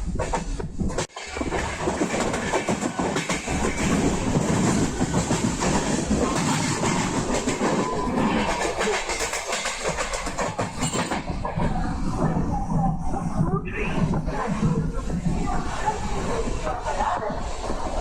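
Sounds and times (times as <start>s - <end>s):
train coach rattling: 0.0s - 18.0s
train wheels clattering over joints: 0.1s - 18.0s.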